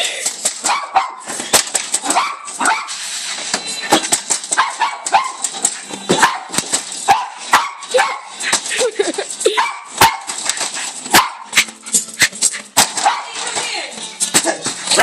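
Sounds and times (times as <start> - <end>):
dog barking excitedly: 0.6 - 1.4, 2.0 - 3.0, 4.5 - 8.7, 9.4 - 13.6.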